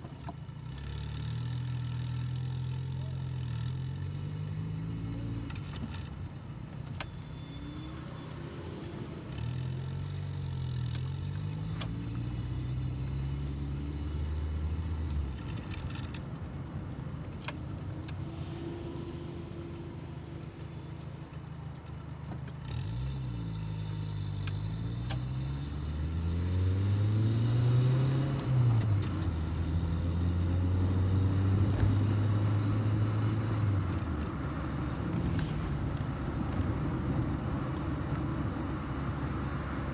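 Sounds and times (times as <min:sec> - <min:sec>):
car engine running: 0:05.5 - 0:39.9.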